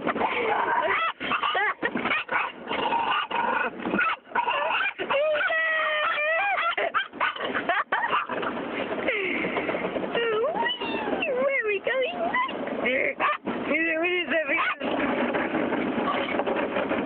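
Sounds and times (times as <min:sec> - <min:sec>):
dog whining: 0:00.2 - 0:02.5, 0:03.1 - 0:07.4, 0:10.4 - 0:11.4, 0:12.0 - 0:12.6
dog barking frantically: 0:00.2 - 0:08.6, 0:13.2 - 0:13.5, 0:14.5 - 0:15.0.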